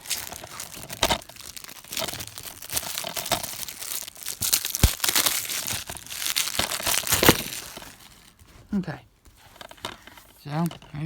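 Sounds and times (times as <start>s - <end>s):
plastic wrap crinkling and tearing: 0.0s - 8.6s.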